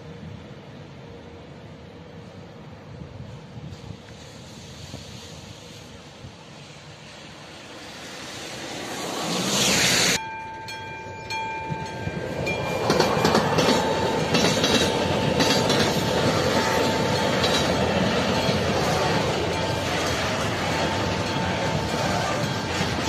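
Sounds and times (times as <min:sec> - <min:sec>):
rush of noise: 0:03.8 - 0:10.2
high warning tone: 0:10.0 - 0:23.0
train wheels clattering: 0:10.4 - 0:23.0.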